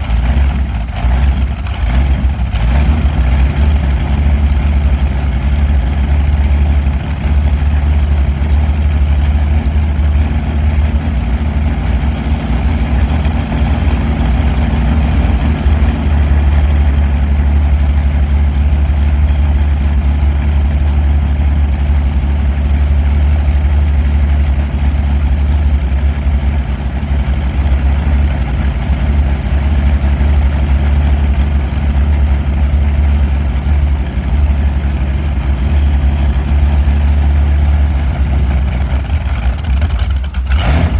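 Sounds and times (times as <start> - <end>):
aircraft engine running: 0.0 - 40.9.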